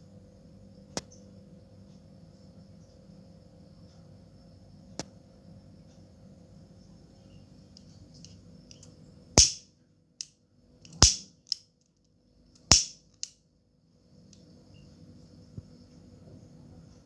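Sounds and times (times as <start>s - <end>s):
sharp clicks: 8.7s - 9.6s, 10.9s - 11.6s, 12.7s - 13.3s.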